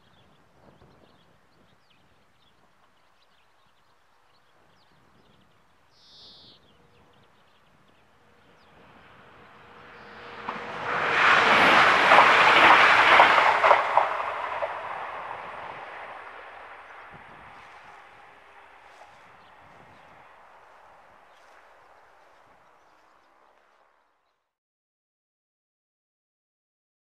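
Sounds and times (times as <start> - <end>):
train passing at speed: 6.7 - 23.8
wheels clattering on rails: 8.4 - 22.6.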